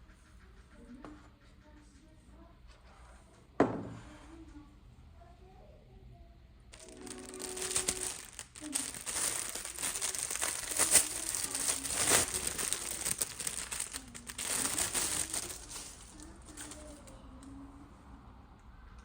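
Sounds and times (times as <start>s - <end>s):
packaging crinkling and rustling: 6.8s - 17.2s.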